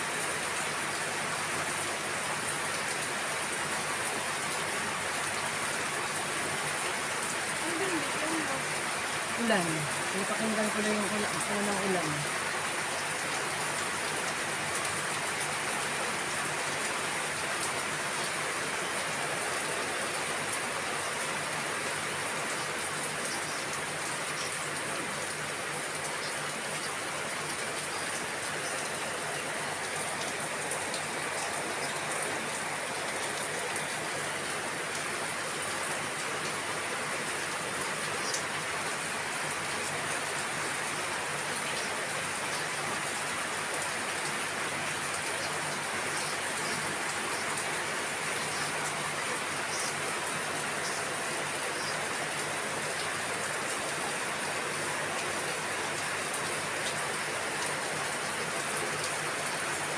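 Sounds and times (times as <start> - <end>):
steady rain patter: 0.0 - 59.9.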